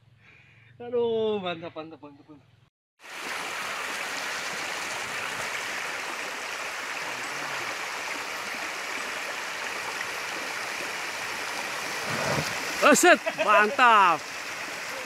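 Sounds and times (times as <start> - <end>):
stream running over rocks: 3.0 - 15.0.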